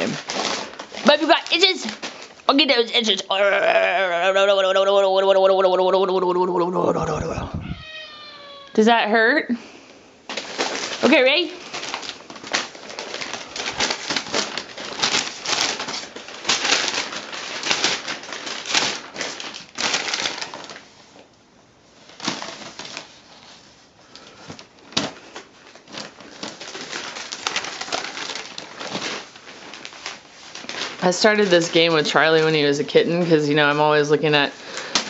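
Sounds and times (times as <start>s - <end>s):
paper rustling and crinkling: 0.0s - 2.4s, 10.3s - 21.3s, 21.9s - 35.0s.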